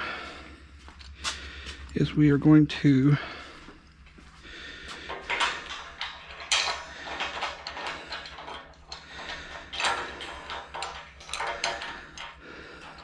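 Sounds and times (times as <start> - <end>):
metal hardware clinking: 5.1 - 13.0.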